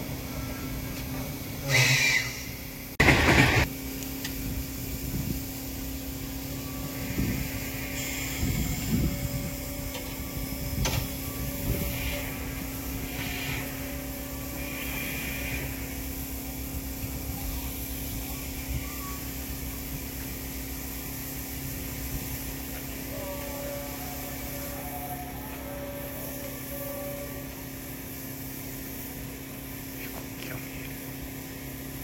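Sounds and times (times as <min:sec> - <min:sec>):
train rumble and hum: 0:00.0 - 0:32.0
faint whining tones: 0:05.8 - 0:20.8.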